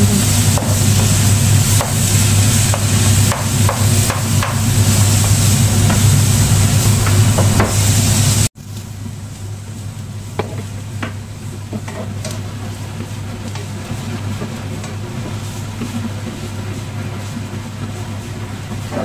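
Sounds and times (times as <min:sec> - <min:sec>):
steady low hum: 0:00.0 - 0:19.0
vegetables sizzling in oil: 0:00.0 - 0:19.0.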